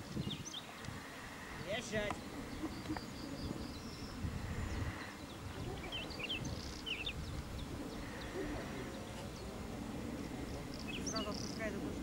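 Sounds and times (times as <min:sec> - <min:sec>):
steady low rumble: 0:00.0 - 0:12.0
small bird chirping: 0:01.6 - 0:09.6, 0:10.4 - 0:11.7.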